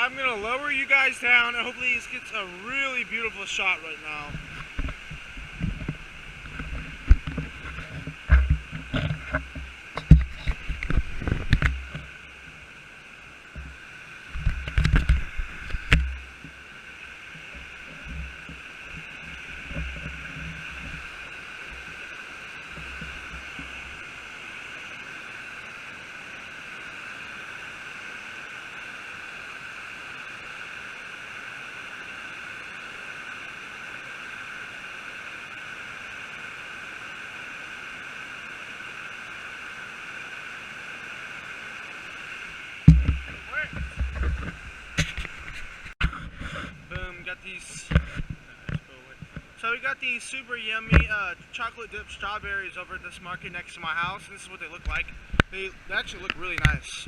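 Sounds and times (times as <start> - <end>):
creek and waterfall rushing: 0.0 - 46.0, 46.9 - 57.0
camera handling thumps: 42.9 - 45.7.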